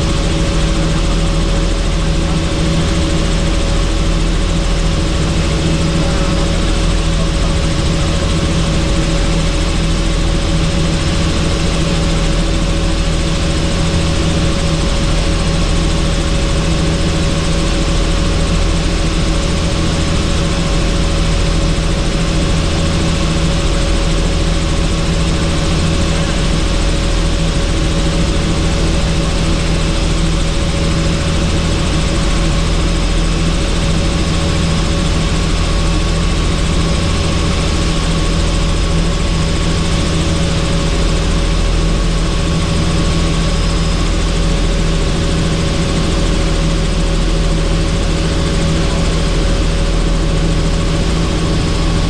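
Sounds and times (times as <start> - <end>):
helicopter running: 0.0 - 52.0.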